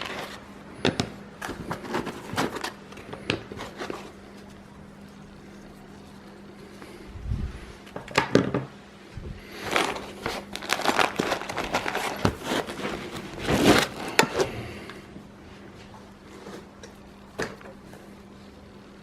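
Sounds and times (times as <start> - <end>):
packaging crinkling: 1.4 - 6.6, 9.5 - 14.6.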